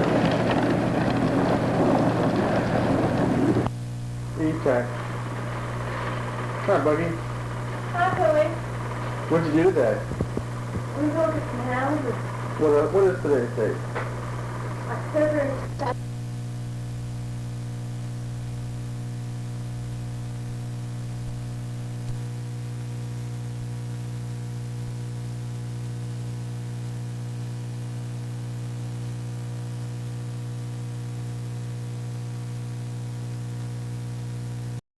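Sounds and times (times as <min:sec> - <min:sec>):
faint hiss: 0:00.0 - 0:16.0
mains hum: 0:00.0 - 0:34.8.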